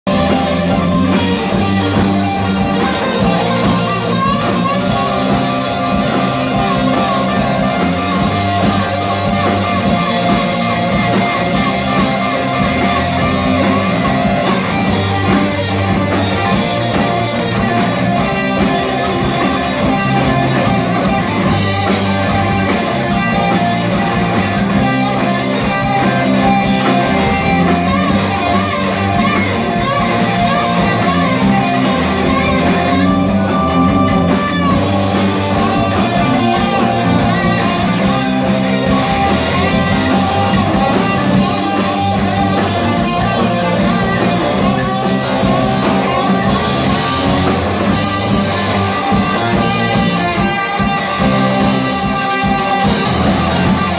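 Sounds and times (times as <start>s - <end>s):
electric guitar: 0.0s - 53.9s
live rock music: 0.0s - 53.9s.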